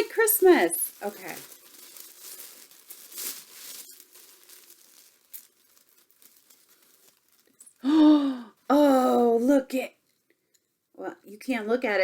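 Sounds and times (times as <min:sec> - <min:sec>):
tissue paper crinkling: 0:00.0 - 0:09.0.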